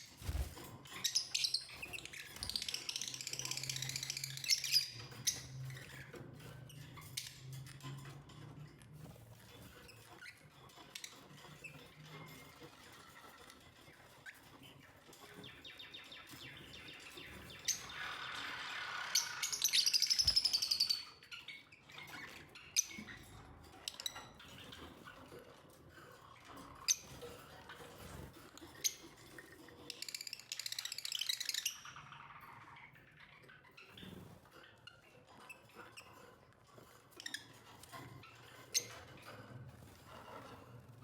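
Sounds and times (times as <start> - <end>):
rapid high-pitched bird calls: 15.5 - 21.4.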